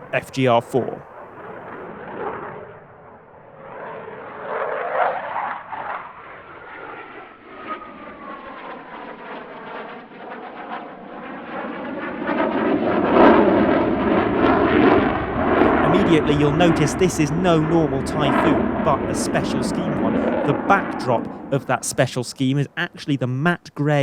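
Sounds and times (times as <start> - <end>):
jet engines passing: 0.0 - 10.2, 11.0 - 24.0.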